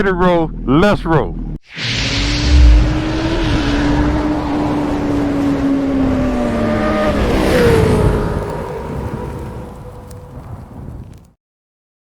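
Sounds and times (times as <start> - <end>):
motorcycle engine running: 5.1 - 11.1.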